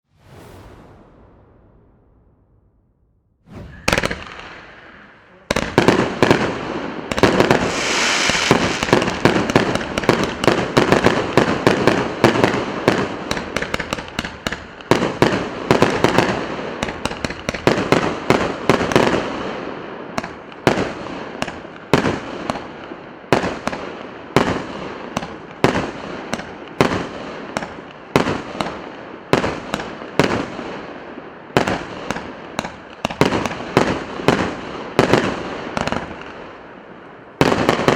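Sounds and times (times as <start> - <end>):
fireworks shots and bangs: 3.4 - 37.9
fireworks crackle: 3.5 - 18.0.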